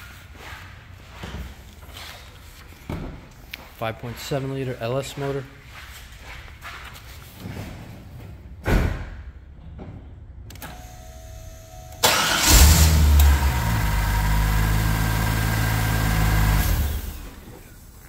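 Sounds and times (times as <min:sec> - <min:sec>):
thump: 0:08.6 - 0:09.2
car engine starting and idling: 0:10.5 - 0:18.0.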